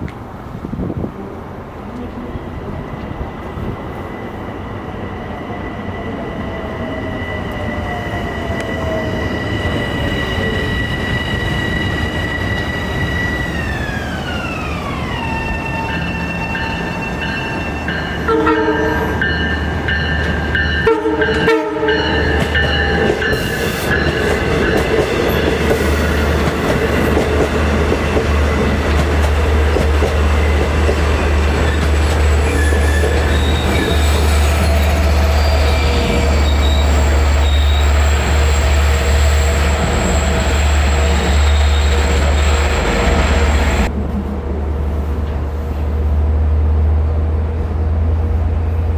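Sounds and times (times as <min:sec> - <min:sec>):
train wheels rumbling on rail: 0:00.0 - 0:48.9
high wheel squeal: 0:06.5 - 0:20.9, 0:30.2 - 0:43.9
train horn blasts: 0:18.2 - 0:23.2.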